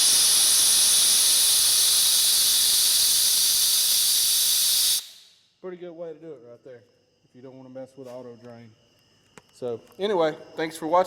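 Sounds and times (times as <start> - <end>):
compressed air hissing from valve: 0.0 - 5.5.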